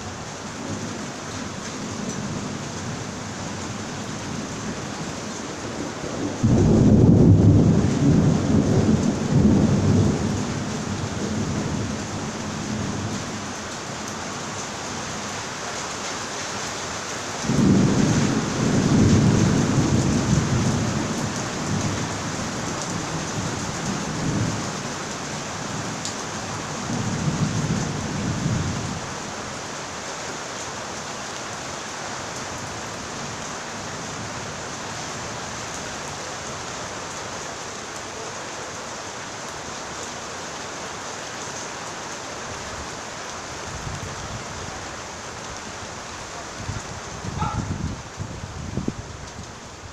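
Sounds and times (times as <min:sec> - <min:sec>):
steady rain: 0:00.0 - 0:49.9
thunder rumbling: 0:02.1 - 0:13.2, 0:17.5 - 0:22.1, 0:46.6 - 0:49.1.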